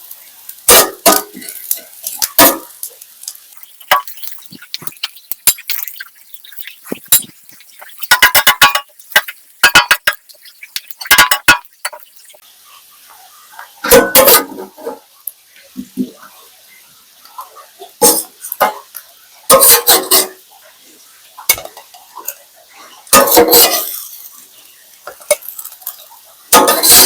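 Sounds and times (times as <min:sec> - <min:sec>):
kitchenware clinking and clattering: 0:00.7 - 0:12.4, 0:13.8 - 0:15.0, 0:18.0 - 0:18.9, 0:19.5 - 0:20.4, 0:23.1 - 0:24.1, 0:25.1 - 0:27.0.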